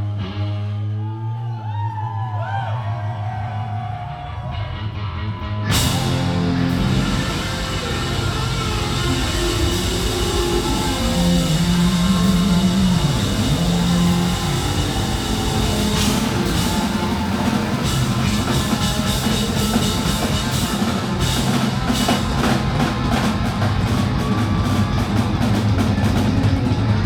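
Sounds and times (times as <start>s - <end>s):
bass guitar low notes: 0.0s - 27.0s
distorted electric guitars: 4.2s - 27.0s
drum kit and cymbals: 5.7s - 27.0s.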